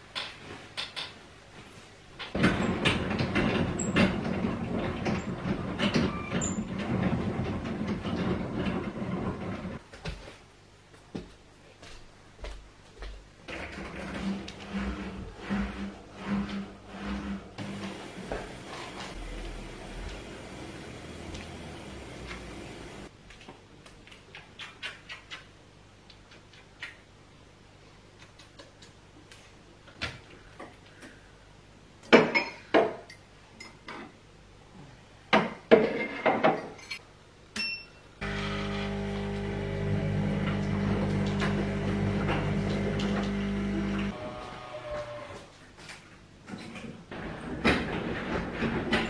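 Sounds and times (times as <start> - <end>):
household appliance humming: 17.0 - 23.1, 38.2 - 44.2.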